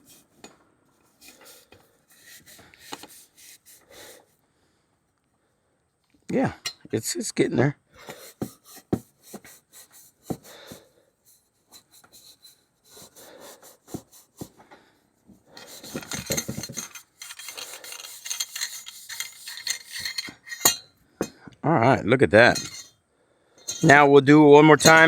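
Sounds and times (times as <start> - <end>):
scuff pad scrubbing metal: 0.0 - 4.2, 8.0 - 14.6, 15.5 - 20.8.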